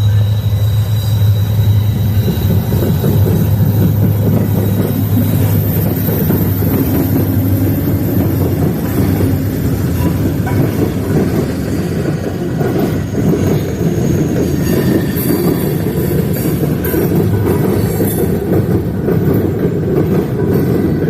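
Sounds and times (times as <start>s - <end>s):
wheel squeals: 0.0s - 19.4s
freight train rumbling: 0.0s - 21.0s.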